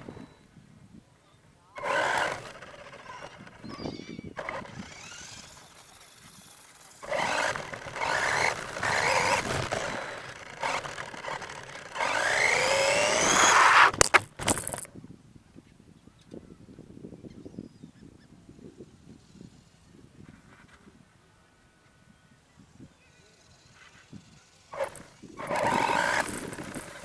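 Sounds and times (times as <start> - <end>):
toy truck motor whining: 1.8 - 14.9, 23.4 - 27.0.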